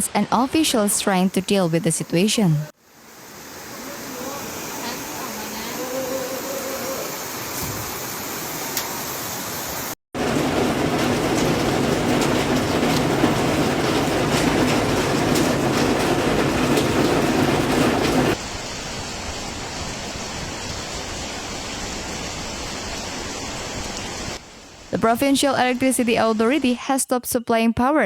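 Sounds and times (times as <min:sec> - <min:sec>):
floodwater rushing: 0:02.8 - 0:24.4.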